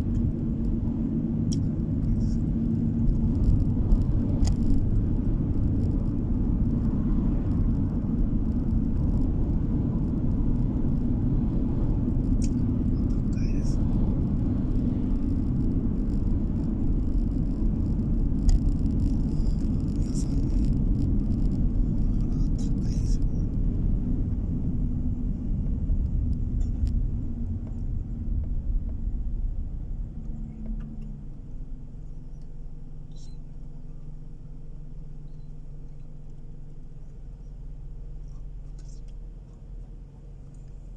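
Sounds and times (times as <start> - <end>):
light ticks: 0.0 - 24.5, 25.5 - 29.2
faint even hum: 0.0 - 39.9
car tyre and engine rumble: 0.0 - 40.9.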